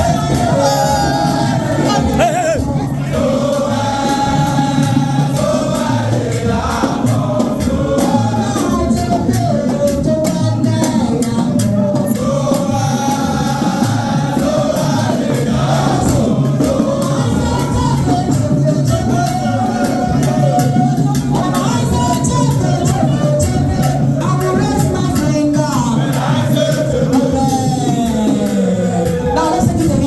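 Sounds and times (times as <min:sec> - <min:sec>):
group singing in chorus: 0:00.0 - 0:30.0
rhythmic percussion: 0:00.0 - 0:30.0.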